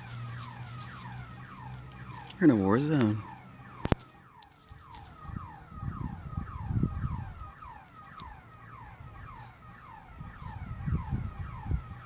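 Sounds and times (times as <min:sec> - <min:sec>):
car alarm whooping: 0:05.0 - 0:12.0
wind rumble on microphone: 0:05.1 - 0:07.7, 0:10.0 - 0:12.0.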